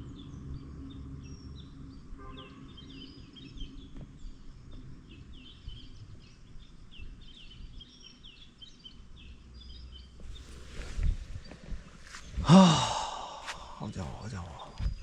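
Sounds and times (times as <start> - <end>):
small birds chirping: 0.0 - 15.0
rustle: 9.9 - 12.4.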